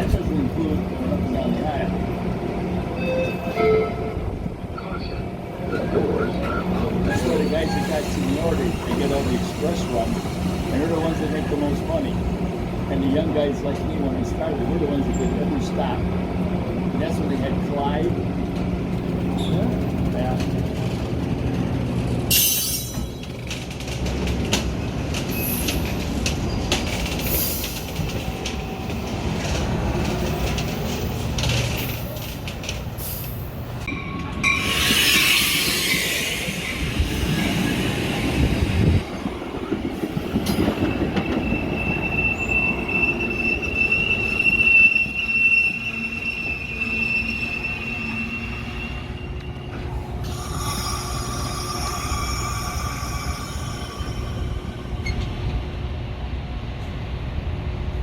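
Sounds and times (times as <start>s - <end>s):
train rumbling: 0.0s - 58.0s
high wheel squeal: 5.8s - 11.6s, 34.4s - 38.6s, 40.6s - 55.4s
high steady tones: 42.0s - 55.6s.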